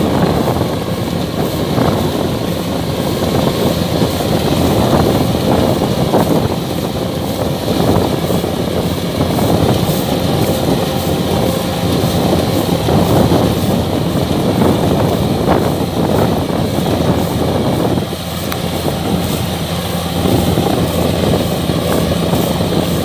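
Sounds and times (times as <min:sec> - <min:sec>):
clatter of threshing machinery: 0:00.0 - 0:23.0
diesel engine drone: 0:00.0 - 0:23.0.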